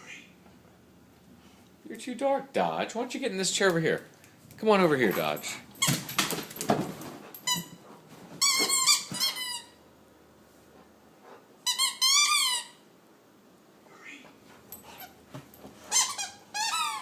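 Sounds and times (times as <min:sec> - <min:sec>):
squeaky dog toy squeaking: 0:08.4 - 0:09.8, 0:11.6 - 0:12.8, 0:15.9 - 0:17.0.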